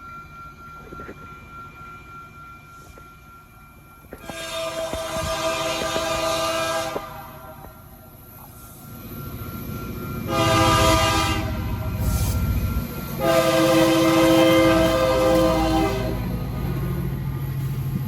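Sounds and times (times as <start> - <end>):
passing train rumble: 0.0 - 18.0
locomotive air horn blasts: 4.2 - 7.8, 10.3 - 12.2, 13.2 - 16.3.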